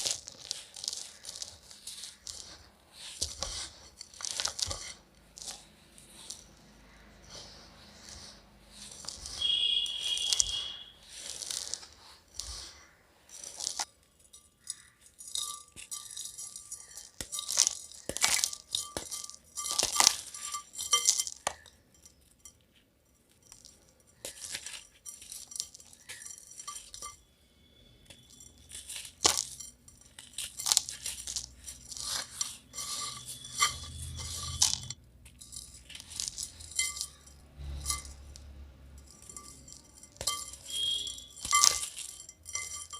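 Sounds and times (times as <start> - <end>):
granules crunching in a clay pot: 0.0 - 42.9.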